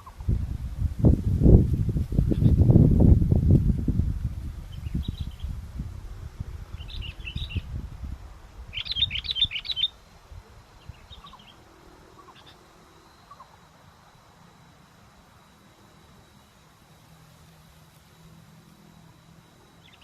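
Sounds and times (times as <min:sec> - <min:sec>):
wind rumble on microphone: 0:00.0 - 0:11.6
bird chirping: 0:06.7 - 0:07.7, 0:08.7 - 0:10.0, 0:10.8 - 0:11.6, 0:12.2 - 0:13.7, 0:19.7 - 0:20.0.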